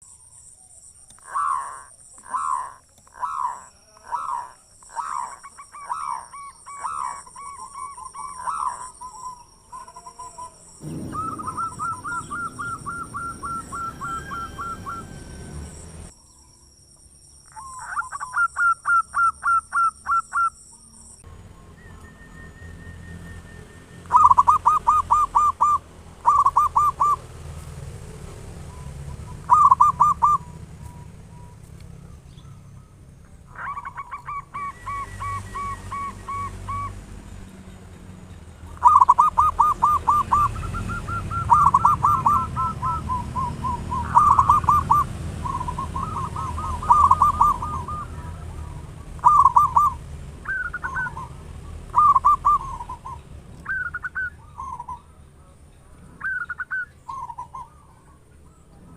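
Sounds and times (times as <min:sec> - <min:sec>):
dove cooing: 0:01.2 - 0:16.1, 0:24.0 - 0:32.8, 0:33.5 - 0:37.1, 0:38.8 - 0:55.0.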